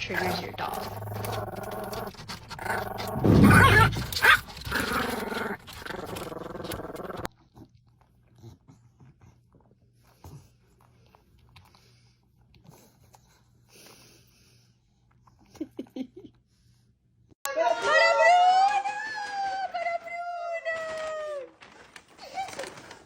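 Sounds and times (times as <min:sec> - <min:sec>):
dog growling: 0:00.0 - 0:07.3.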